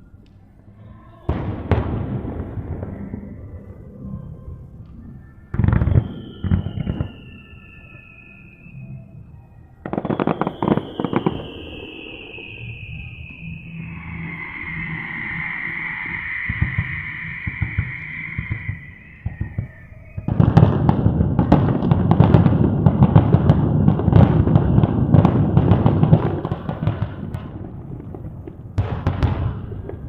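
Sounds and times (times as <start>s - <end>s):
fireworks bangs and crackles: 1.2s - 3.9s, 4.6s - 30.0s
high-pitched tone: 2.6s - 20.7s.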